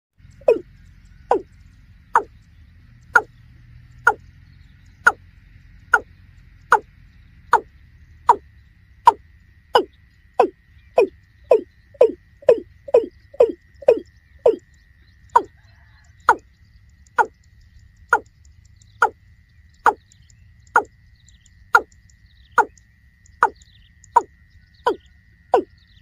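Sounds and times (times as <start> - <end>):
bird calling falling notes: 0.4 - 0.6, 1.3 - 1.5, 9.8 - 14.6, 15.4 - 16.4.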